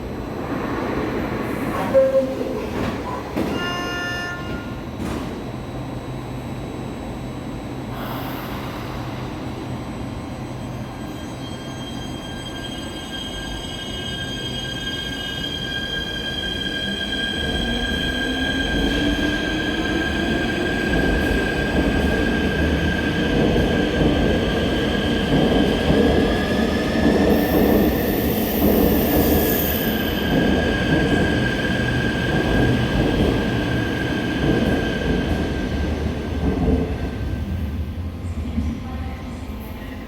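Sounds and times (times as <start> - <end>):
train wheels rumbling on rail: 15.5 - 40.0.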